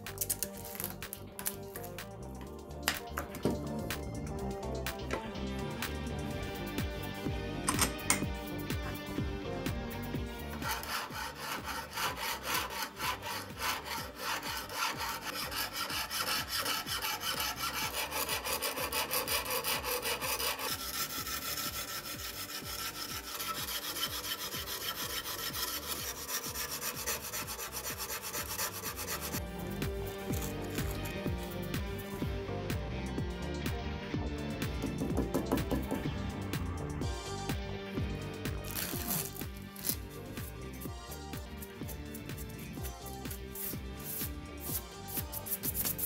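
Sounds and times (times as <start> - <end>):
file rasping on steel blade: 10.4 - 31.6, 38.7 - 46.0.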